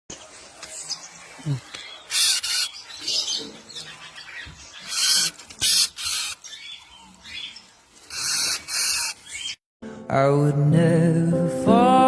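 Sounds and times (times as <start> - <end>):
bird hissing bursts: 2.1 - 2.7, 8.1 - 9.2.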